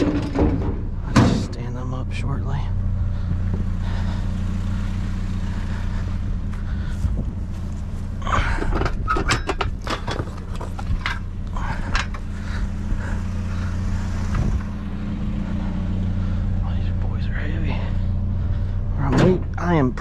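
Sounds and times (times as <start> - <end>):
metal bed frames clanking: 0.0 - 1.7, 8.3 - 12.3
vehicle engine idling: 0.0 - 20.0.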